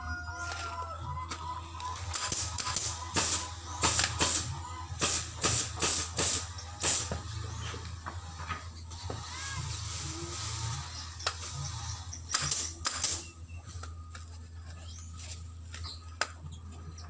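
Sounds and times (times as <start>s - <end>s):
steady low hum: 0.8s - 17.0s
tool sharp bursts with hiss: 2.1s - 7.2s, 9.2s - 13.3s.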